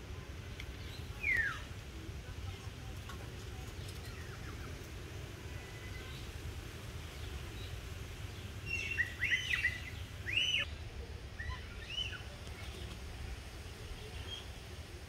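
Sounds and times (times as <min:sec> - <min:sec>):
birds chirping: 0:00.4 - 0:01.7, 0:03.6 - 0:10.8.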